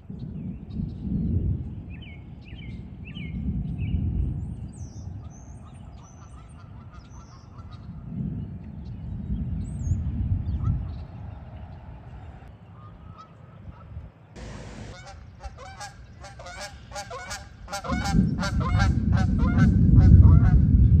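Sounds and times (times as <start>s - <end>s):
birds chirping: 8.7s - 18.5s
deep rumbling swells: 14.4s - 15.4s.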